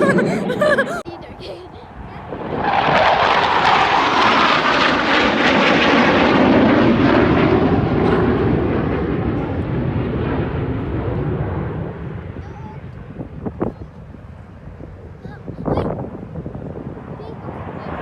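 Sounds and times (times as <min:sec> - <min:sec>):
jet fighter roar passing low: 0:01.9 - 0:12.3.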